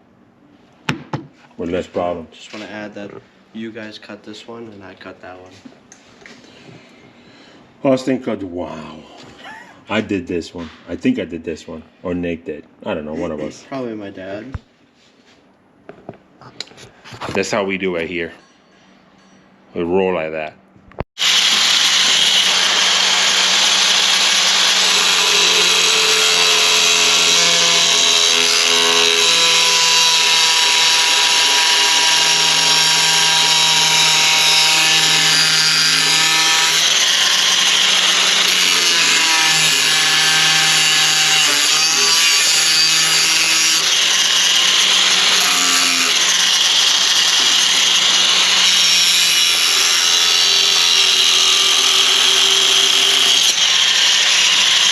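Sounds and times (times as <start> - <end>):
power tool grinding: 21.2 - 54.9.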